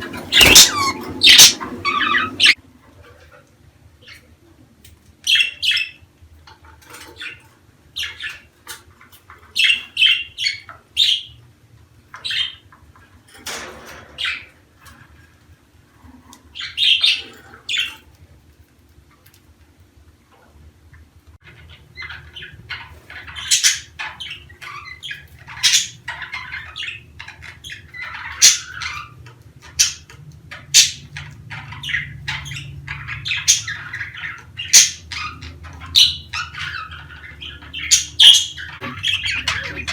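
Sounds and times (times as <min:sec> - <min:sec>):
budgerigars chirping and squawking: 0:00.0 - 0:02.6, 0:05.2 - 0:06.0, 0:06.9 - 0:11.4, 0:12.1 - 0:12.8, 0:14.1 - 0:14.6, 0:16.5 - 0:18.0, 0:21.4 - 0:39.9.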